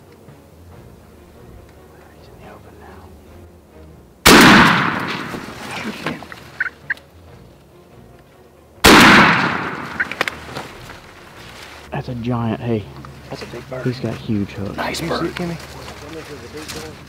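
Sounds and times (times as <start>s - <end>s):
echoing shotgun blasts: 4.2s - 5.7s, 8.8s - 10.4s.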